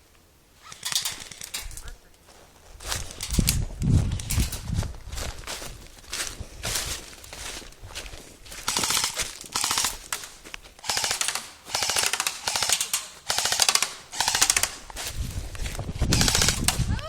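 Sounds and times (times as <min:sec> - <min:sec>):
airsoft rifle firing bursts: 0:00.6 - 0:01.9, 0:08.6 - 0:15.1, 0:16.0 - 0:16.9.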